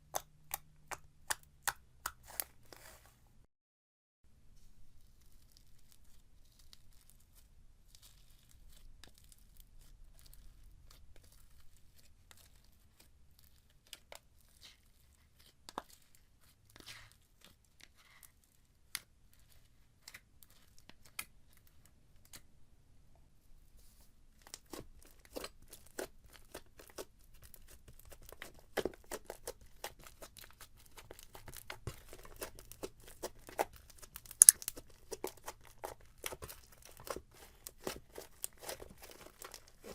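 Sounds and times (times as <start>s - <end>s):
slime clicking and popping: 33.5s - 35.6s.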